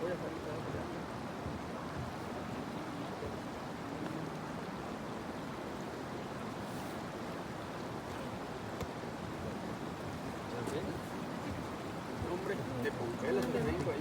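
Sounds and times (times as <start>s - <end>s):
river water rushing: 0.1s - 14.0s.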